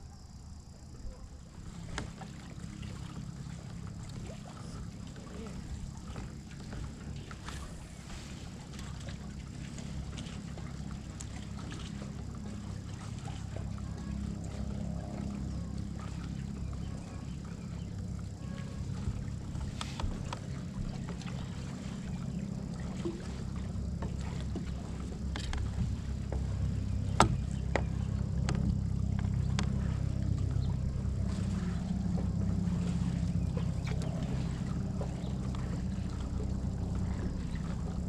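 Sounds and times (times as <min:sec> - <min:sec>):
low rumble: 0:00.0 - 0:38.0
light knocks on kayak hull: 0:24.0 - 0:29.8.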